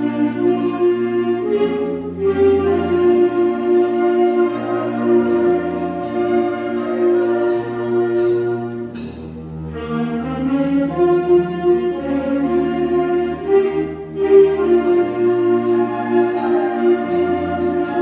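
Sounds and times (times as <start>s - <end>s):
light percussion strokes: 2.4s - 10.4s, 14.2s - 18.0s.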